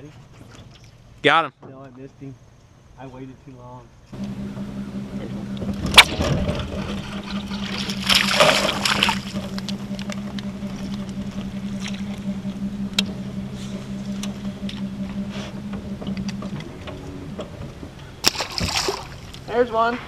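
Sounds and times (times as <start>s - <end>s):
boat motor humming: 4.0s - 20.0s.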